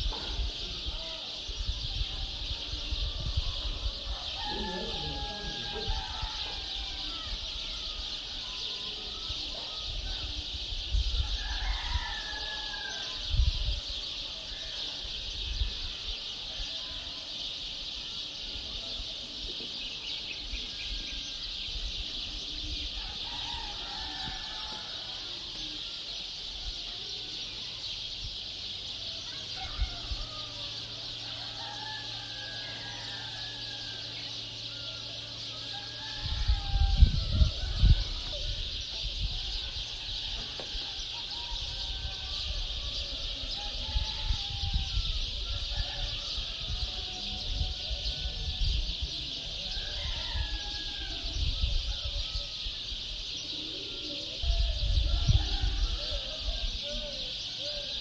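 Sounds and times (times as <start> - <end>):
birds calling: 0.0 - 58.0.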